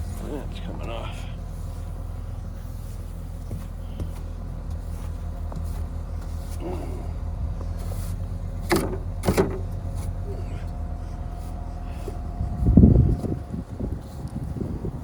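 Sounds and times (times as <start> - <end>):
car engine idling: 0.0 - 15.0
broom brushing snow: 4.8 - 6.6, 7.7 - 8.2, 11.2 - 13.4.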